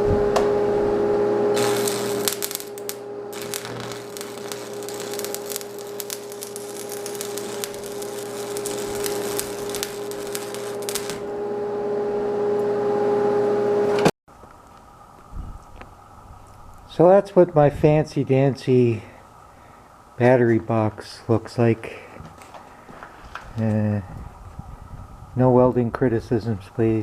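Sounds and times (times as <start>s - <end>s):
electrical hum: 0.0s - 27.0s
welding arc crackling: 1.5s - 11.4s.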